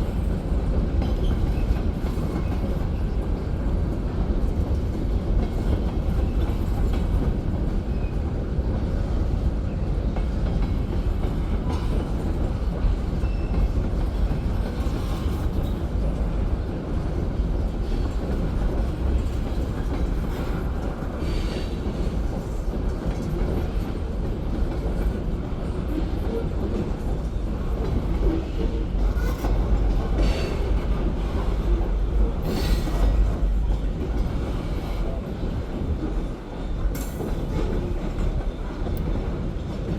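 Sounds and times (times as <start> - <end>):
freight train rumbling on rails: 0.0 - 39.9.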